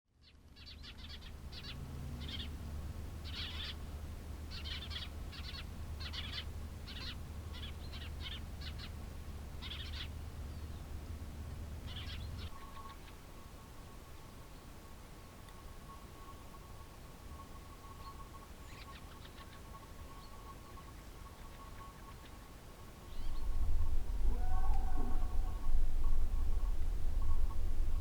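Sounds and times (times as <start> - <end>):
low rumble: 23.2 - 28.0.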